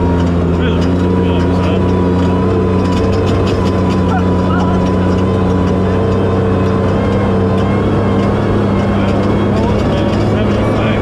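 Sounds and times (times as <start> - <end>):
truck engine running hard: 0.0 - 11.0
light rattles: 0.1 - 11.0.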